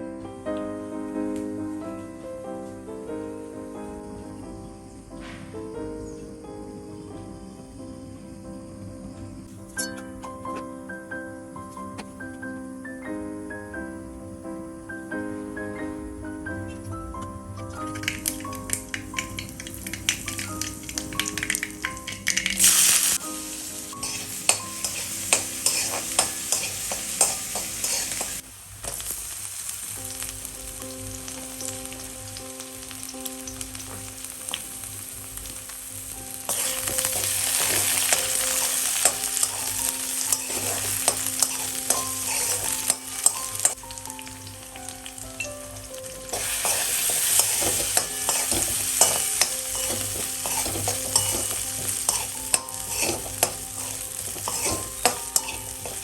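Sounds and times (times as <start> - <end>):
spatula scraping a pan: 9.7 - 10.7, 24.0 - 28.4, 36.5 - 43.8, 46.3 - 56.0
food sizzling in a pan: 16.6 - 56.0.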